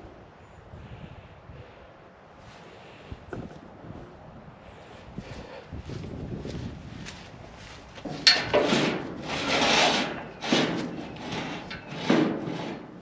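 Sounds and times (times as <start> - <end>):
rubbing and scraping strokes: 8.0 - 13.0.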